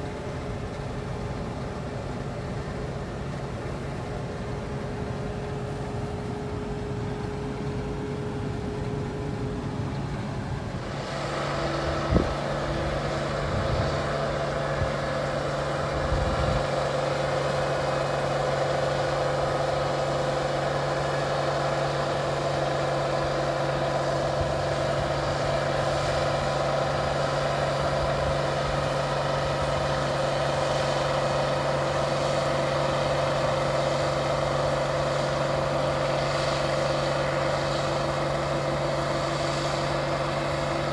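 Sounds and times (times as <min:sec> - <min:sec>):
combine harvester engine drone: 0:00.0 - 0:40.9.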